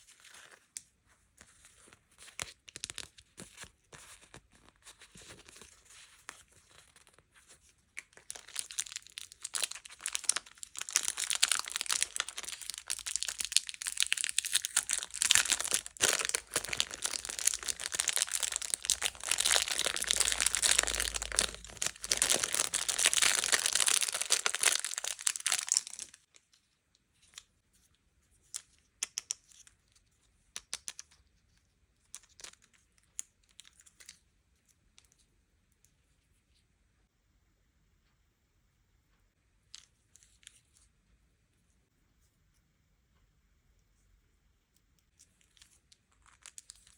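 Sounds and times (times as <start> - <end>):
packaging crinkling and tearing: 2.4 - 3.7, 8.0 - 26.3.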